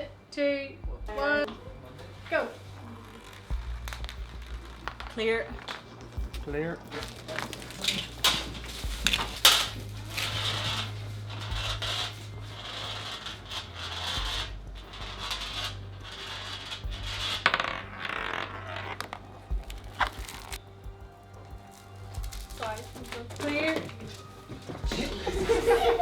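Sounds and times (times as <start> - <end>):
marble rolling rattle: 1.5 - 20.6, 21.3 - 26.0
marble clicking against track: 3.0 - 20.6.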